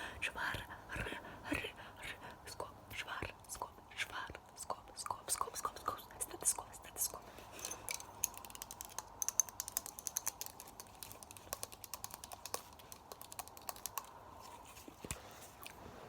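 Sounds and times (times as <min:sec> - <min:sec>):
rapid clicking and tapping: 0:07.6 - 0:14.2.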